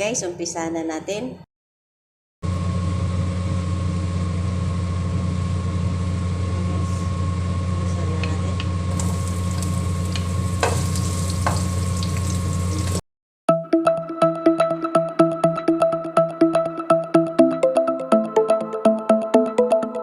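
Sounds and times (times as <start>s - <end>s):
food sizzling in a pan: 9.0s - 13.0s.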